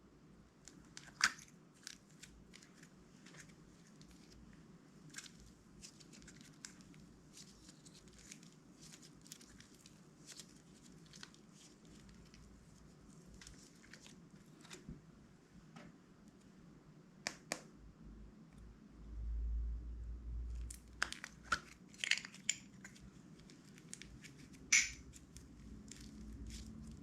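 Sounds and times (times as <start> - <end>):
sticky slime crackles: 0.7 - 14.8, 20.5 - 27.0.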